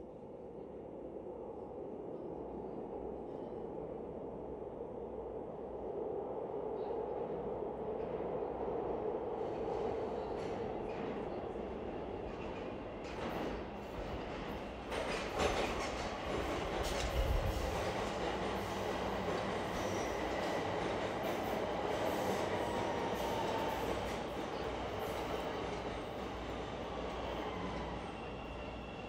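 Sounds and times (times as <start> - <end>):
train running on tracks: 0.0 - 29.0.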